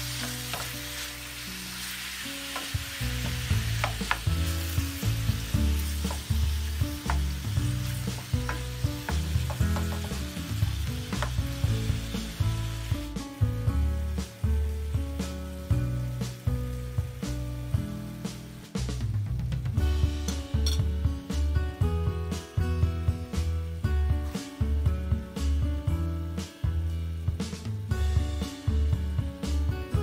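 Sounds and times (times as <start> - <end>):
beef sizzling in frying pan: 0.0 - 19.0
low background music: 0.0 - 30.0
wooden spoon knocking against pan: 2.6 - 4.3, 7.0 - 7.4, 8.1 - 10.2, 11.2 - 11.4.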